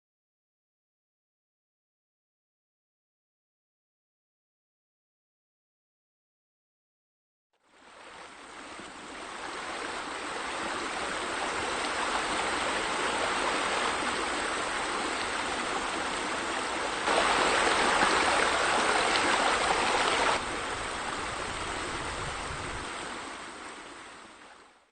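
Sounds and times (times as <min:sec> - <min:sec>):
water splashing and running: 0:07.9 - 0:24.6.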